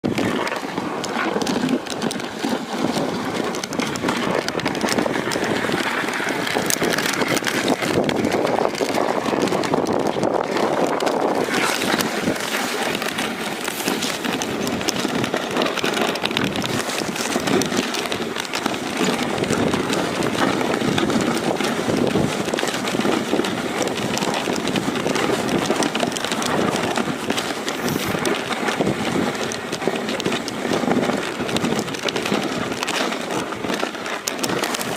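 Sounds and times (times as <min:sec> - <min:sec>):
running dogs' footfalls: 0:00.0 - 0:34.9
sled runners hissing on snow: 0:11.3 - 0:31.8.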